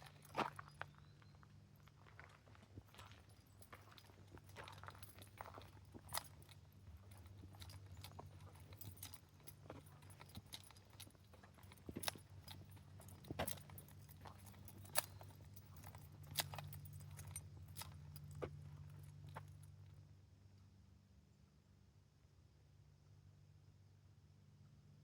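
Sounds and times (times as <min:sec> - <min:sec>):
faint low hum: 0:00.0 - 0:25.0
footsteps: 0:02.2 - 0:19.5.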